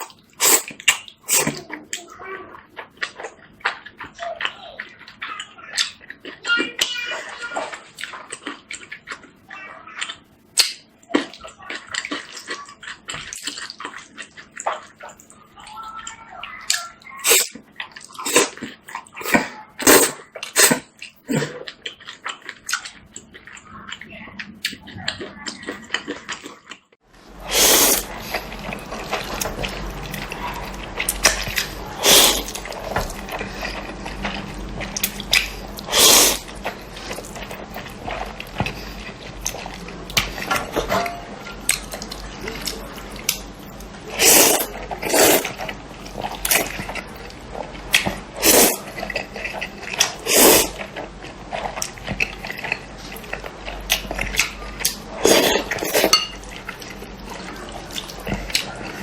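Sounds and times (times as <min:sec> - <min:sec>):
wet slurping and chewing: 0:00.0 - 0:59.0
steady low hum: 0:27.1 - 0:59.0.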